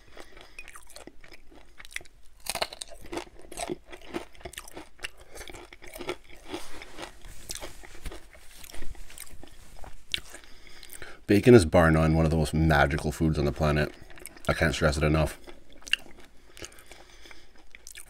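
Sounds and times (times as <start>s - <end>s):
crunchy chewing: 0.0s - 11.1s, 13.8s - 18.0s.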